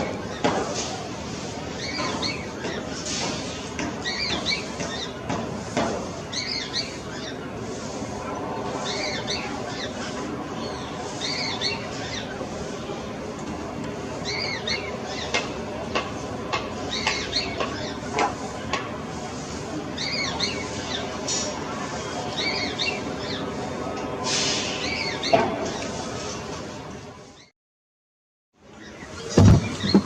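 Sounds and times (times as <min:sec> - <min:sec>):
small birds chirping: 0:01.7 - 0:05.4, 0:06.3 - 0:07.6, 0:08.7 - 0:12.5, 0:16.8 - 0:18.2, 0:19.9 - 0:21.2.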